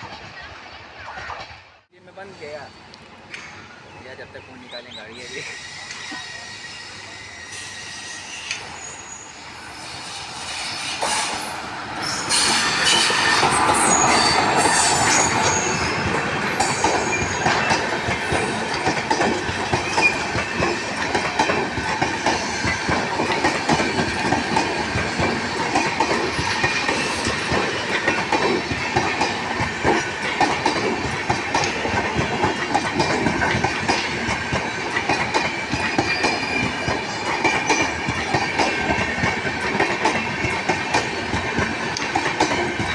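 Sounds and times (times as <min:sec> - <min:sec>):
high wheel squeal: 0:05.1 - 0:18.8, 0:35.6 - 0:37.9
train wheels clattering over rail joints: 0:10.4 - 0:42.9.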